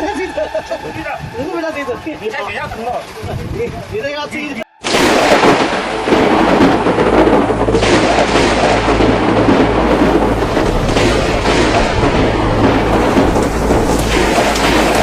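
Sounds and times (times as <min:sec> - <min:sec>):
strong wind: 0:00.0 - 0:15.0
deep thunder rumble: 0:04.8 - 0:15.0
heavy rain: 0:04.8 - 0:15.0.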